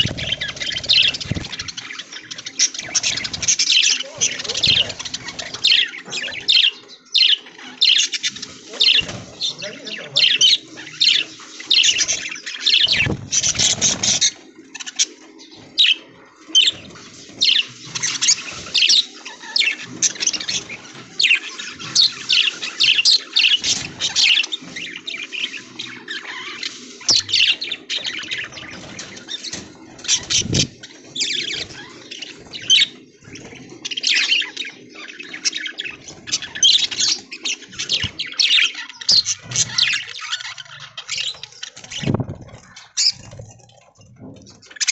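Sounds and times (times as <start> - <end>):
rustle of wings: 0.0 - 5.8, 8.1 - 15.0, 41.2 - 43.9
budgerigars chirping and chattering: 0.0 - 44.9.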